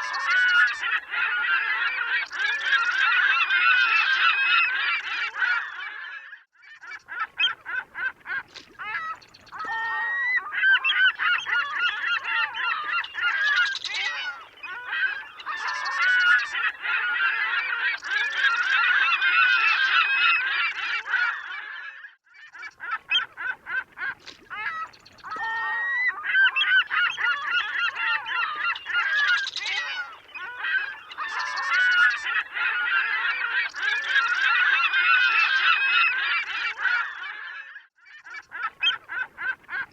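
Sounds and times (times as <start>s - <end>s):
seagulls calling: 0.0s - 39.9s.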